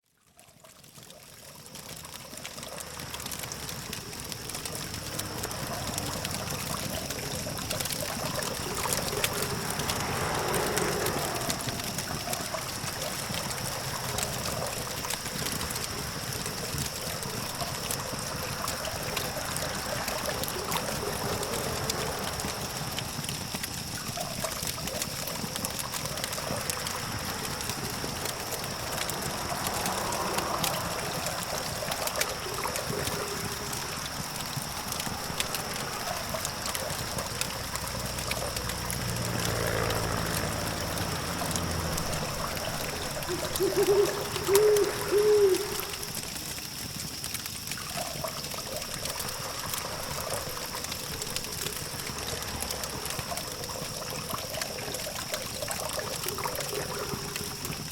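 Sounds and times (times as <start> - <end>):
campfire crackling and popping: 0.4 - 57.9
distant traffic hum: 1.6 - 57.9
vehicle passing: 4.9 - 16.4, 25.8 - 46.4.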